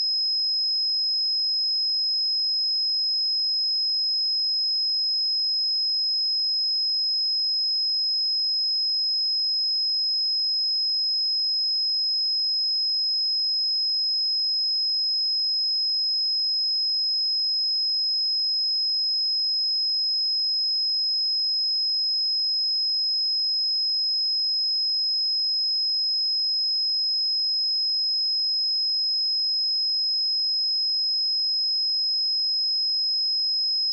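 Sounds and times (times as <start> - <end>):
high-pitched sine-wave test tone: 0.0 - 2.1.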